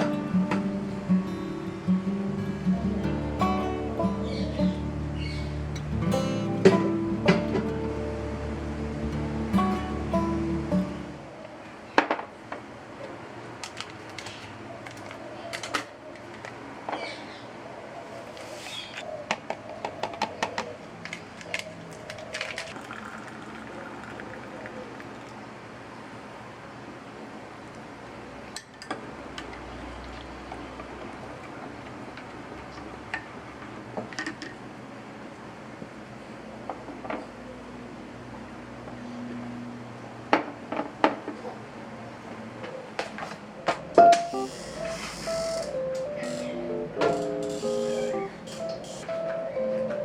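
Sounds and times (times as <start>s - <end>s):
guitar music: 0.0s - 11.2s, 45.3s - 50.0s
clicks and knocks of objects handled: 13.6s - 16.6s, 18.9s - 22.8s
steady hiss: 44.2s - 46.6s.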